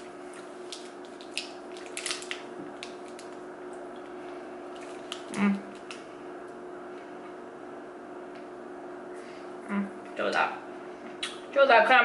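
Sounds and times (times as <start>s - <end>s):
low steady hum: 0.0s - 12.0s
chewing crunches and mouth clicks: 0.2s - 6.0s.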